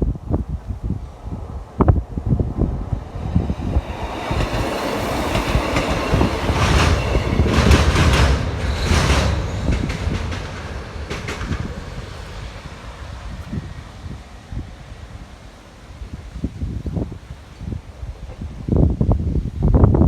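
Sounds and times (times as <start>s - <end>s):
train wheels clacking over rail joints: 3.7s - 13.5s.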